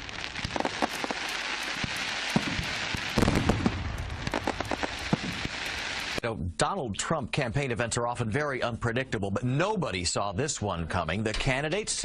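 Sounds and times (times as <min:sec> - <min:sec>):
fireworks bangs: 0:00.0 - 0:06.2
fireworks crackling and popping: 0:00.0 - 0:06.2
steady hiss: 0:00.0 - 0:06.2.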